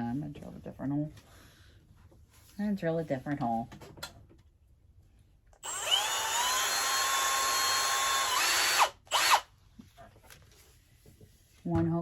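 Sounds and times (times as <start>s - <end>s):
power drill whining: 5.6s - 9.5s.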